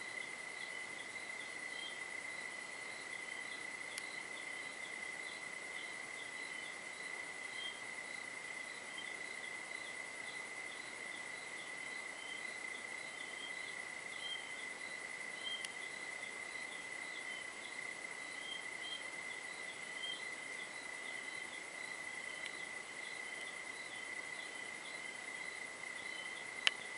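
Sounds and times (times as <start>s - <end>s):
insect chirping: 0.0s - 26.9s
insect steady high trill: 0.0s - 26.9s
faint click: 3.9s - 4.1s, 15.6s - 15.8s, 22.4s - 22.6s, 26.6s - 26.9s.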